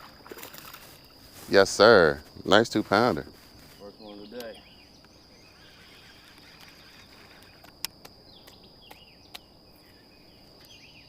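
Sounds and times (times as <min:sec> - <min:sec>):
high-pitched insect drone: 0:00.0 - 0:11.0
short bird chirps: 0:04.4 - 0:07.6.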